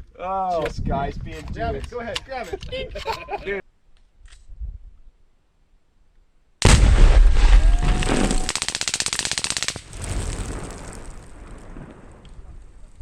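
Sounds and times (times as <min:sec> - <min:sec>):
heavy explosion boom: 0:06.6 - 0:08.6, 0:09.9 - 0:13.0
machine-gun fire: 0:06.6 - 0:11.0.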